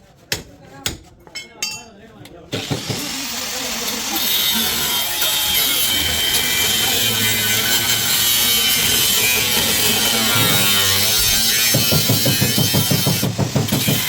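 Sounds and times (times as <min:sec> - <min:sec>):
power tool grinding metal: 0:02.6 - 0:14.0.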